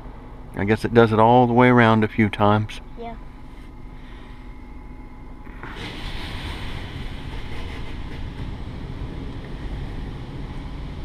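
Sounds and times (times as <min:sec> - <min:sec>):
low rumble: 0:03.4 - 0:11.0
hissing spray hitting car: 0:05.6 - 0:11.0.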